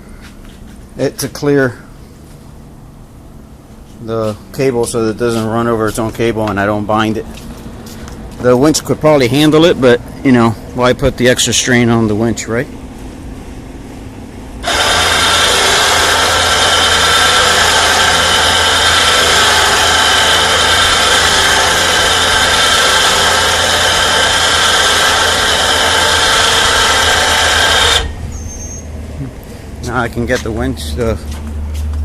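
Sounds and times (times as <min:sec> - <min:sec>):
electric winch motor whining: 0:14.6 - 0:28.9.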